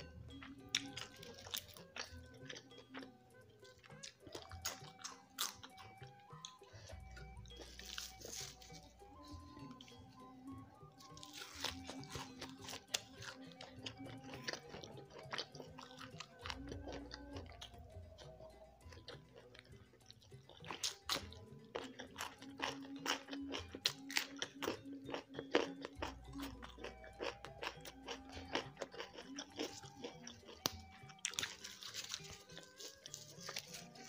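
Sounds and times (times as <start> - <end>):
chewing with crunches and mouth clicks: 0.0 - 34.0
leafy greens rustling: 7.6 - 8.9, 31.4 - 34.0.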